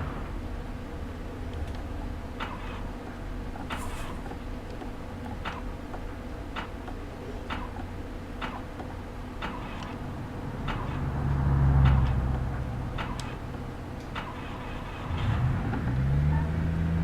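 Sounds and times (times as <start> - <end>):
low rumble: 0.0 - 2.4, 9.9 - 14.1
steady low hum: 0.0 - 17.0.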